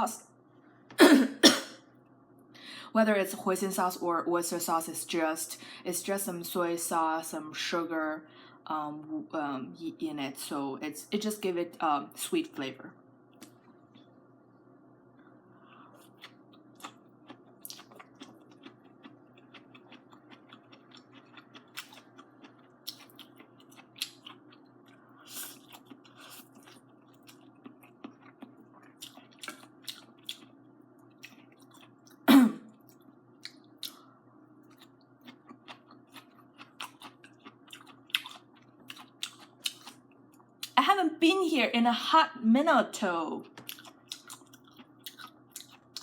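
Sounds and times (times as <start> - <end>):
person chewing noodles: 15.6 - 32.2, 32.8 - 40.8, 43.6 - 46.0.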